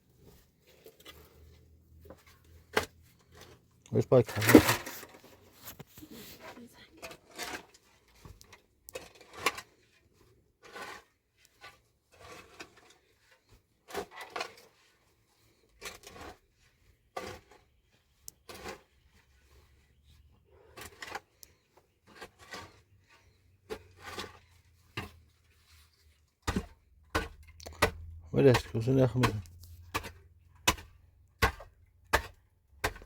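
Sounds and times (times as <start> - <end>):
scraping of objects handled: 4.2 - 10.0.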